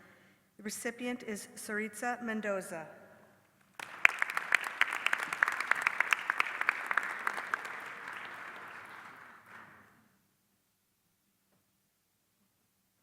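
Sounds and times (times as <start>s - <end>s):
sharp nearby claps: 3.7s - 10.0s
audience applauding: 3.8s - 9.9s.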